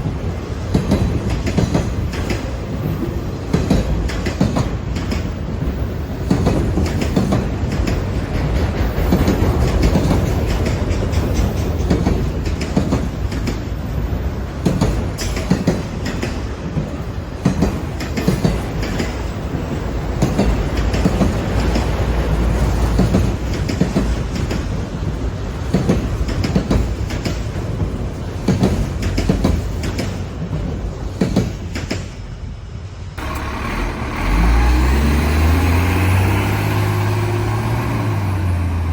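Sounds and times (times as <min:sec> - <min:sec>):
wheels clacking on rail joints: 0:00.0 - 0:32.4, 0:33.2 - 0:38.9
train rumbling past: 0:00.0 - 0:38.9
large engine droning: 0:33.2 - 0:38.9.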